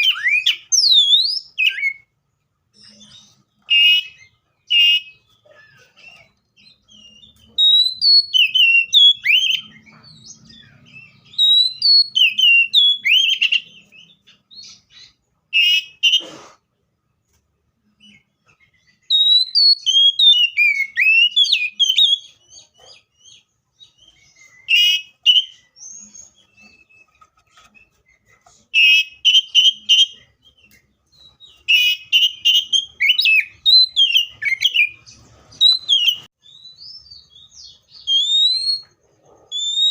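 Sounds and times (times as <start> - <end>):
bird singing whistled phrases: 0.0 - 2.1, 6.1 - 9.9, 10.7 - 16.2, 18.9 - 22.4, 23.2 - 28.0, 28.8 - 35.0, 35.6 - 38.9, 39.5 - 39.9.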